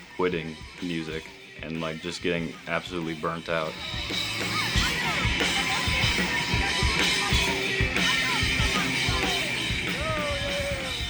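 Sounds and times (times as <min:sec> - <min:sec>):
drum kit beat: 0:00.0 - 0:11.0
rock band music: 0:00.0 - 0:11.0.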